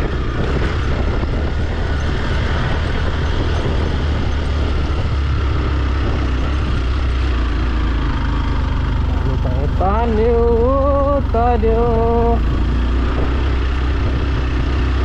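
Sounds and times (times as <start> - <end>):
motorcycle engine droning: 0.0 - 15.0.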